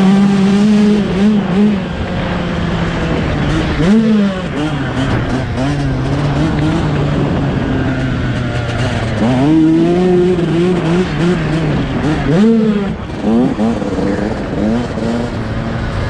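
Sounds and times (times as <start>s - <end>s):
two-stroke engine revving: 0.0s - 16.0s.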